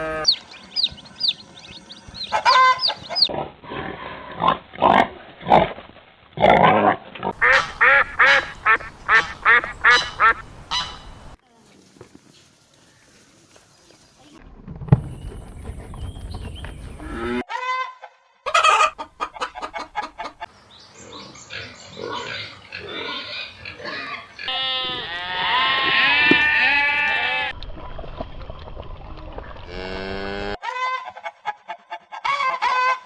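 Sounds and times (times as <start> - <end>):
chicken calls: 0.0 - 3.3, 7.4 - 11.4, 15.8 - 27.5, 30.6 - 33.0
farm animals calling: 0.0 - 3.4, 7.3 - 11.3, 15.2 - 17.8, 18.5 - 27.5
pig calls: 21.0 - 27.5.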